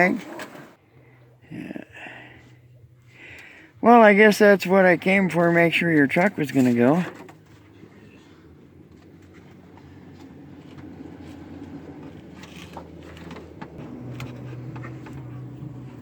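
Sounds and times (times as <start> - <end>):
pickup truck engine idling: 6.7 - 16.0.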